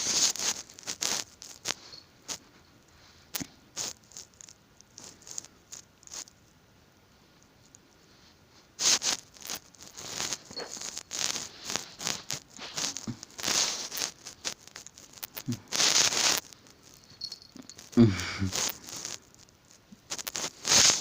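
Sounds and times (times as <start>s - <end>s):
cat scuffling and scratching: 8.2s - 16.5s.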